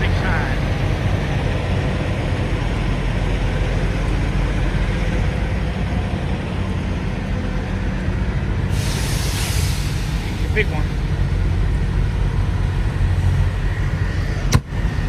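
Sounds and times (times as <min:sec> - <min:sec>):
truck engine rumbling: 0:00.0 - 0:15.0
burst of air hiss: 0:08.7 - 0:10.4.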